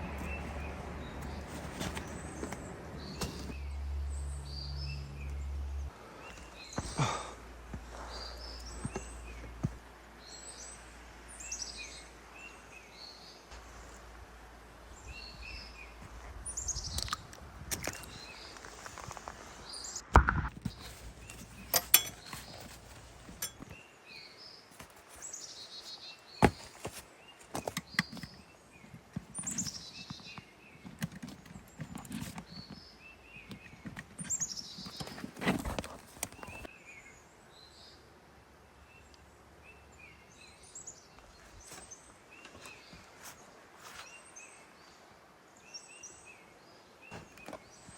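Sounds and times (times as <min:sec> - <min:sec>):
birds singing: 0:00.0 - 0:14.2, 0:14.9 - 0:47.9.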